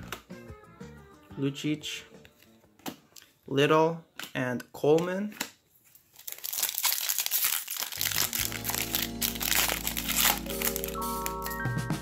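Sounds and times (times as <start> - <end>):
background music with held chords: 0.0 - 2.7, 8.0 - 12.0
foil wrapper crinkling: 5.8 - 11.6.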